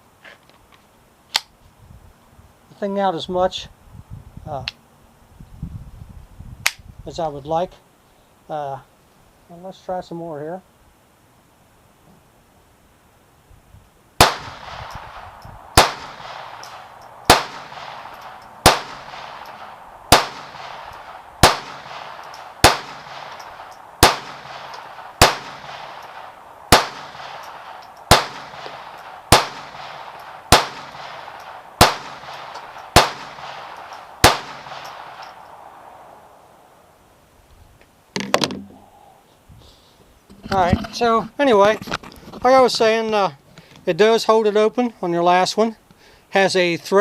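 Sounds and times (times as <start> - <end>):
pistol shots: 14.2 - 35.9.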